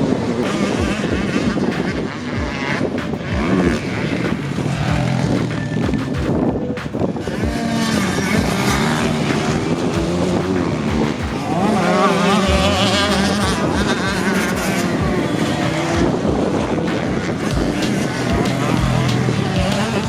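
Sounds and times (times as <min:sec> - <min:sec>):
motocross bike engines revving: 0:07.5 - 0:20.0.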